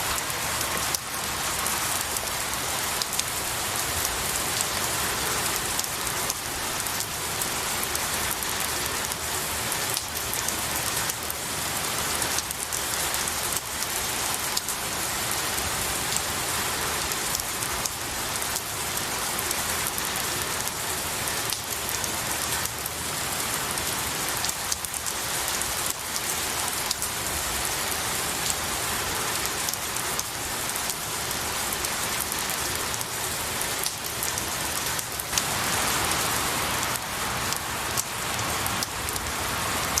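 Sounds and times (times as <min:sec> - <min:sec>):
rain hissing: 0:00.0 - 0:40.0
raindrops ticking: 0:00.1 - 0:04.9, 0:29.4 - 0:40.0.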